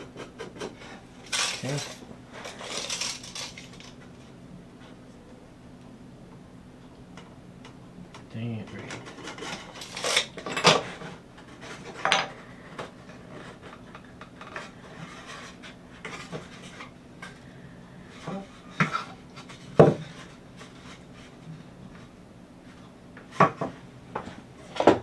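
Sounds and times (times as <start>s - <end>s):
wooden boards and tools knocking: 19.8s - 20.2s, 23.3s - 25.0s.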